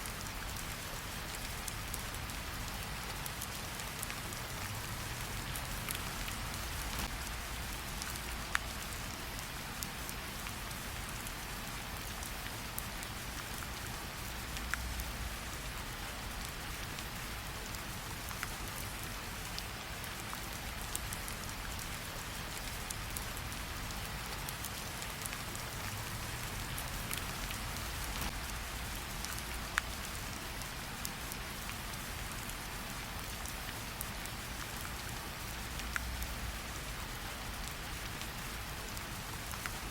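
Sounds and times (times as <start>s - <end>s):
steady rain falling: 0.0s - 39.9s
campfire crackling: 0.4s - 9.4s, 17.7s - 30.1s.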